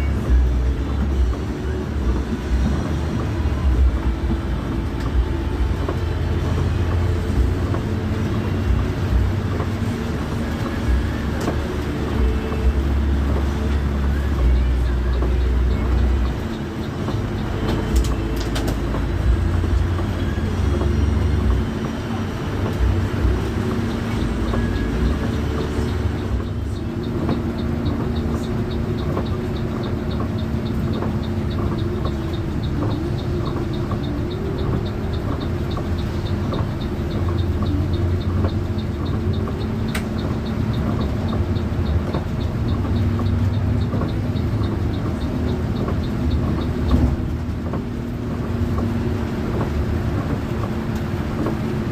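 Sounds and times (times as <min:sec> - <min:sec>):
bus engine drone: 0:00.0 - 0:51.9
light regular ticking: 0:00.0 - 0:51.9
road noise: 0:00.0 - 0:51.9.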